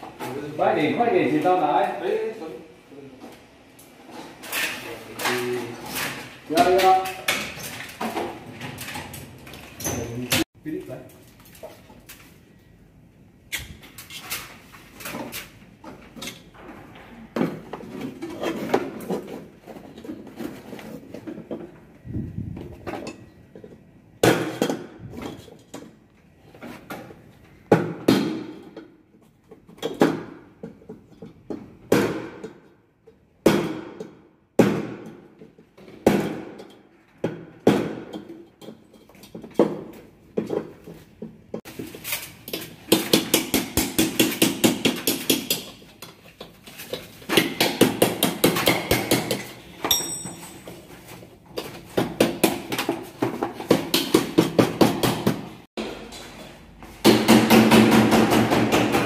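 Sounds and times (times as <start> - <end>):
sharp knocks and clanks: 42.5 - 59.0.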